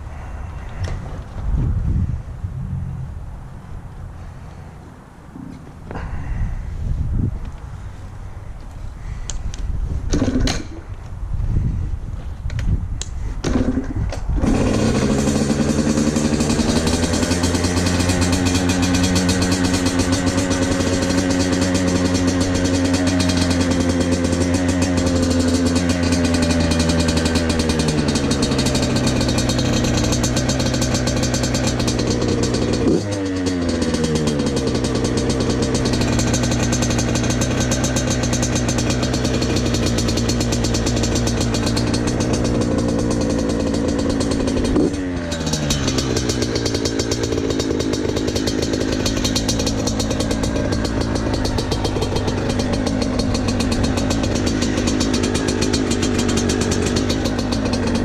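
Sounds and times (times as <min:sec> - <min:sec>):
motorcycle engine running: 0:13.4 - 0:58.0.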